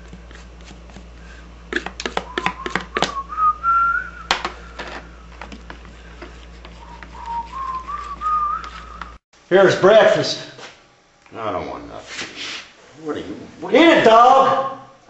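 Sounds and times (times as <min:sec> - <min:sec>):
person whistling a tune: 0:02.2 - 0:04.8, 0:06.8 - 0:09.2.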